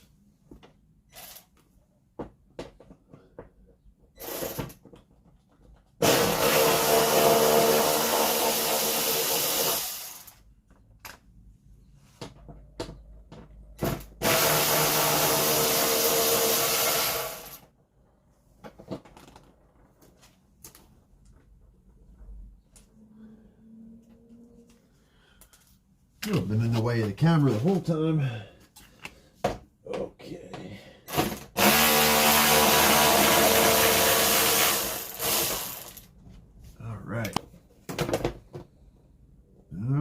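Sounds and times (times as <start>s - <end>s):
power drill running: 6.0s - 10.3s, 13.8s - 17.6s, 31.1s - 36.1s.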